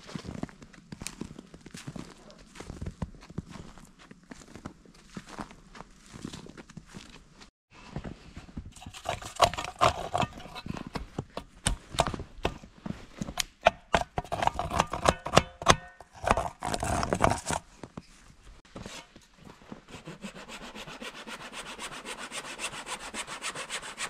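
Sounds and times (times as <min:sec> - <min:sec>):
hand saw cutting log: 0:08.8 - 0:12.1, 0:13.4 - 0:17.7, 0:18.8 - 0:24.0.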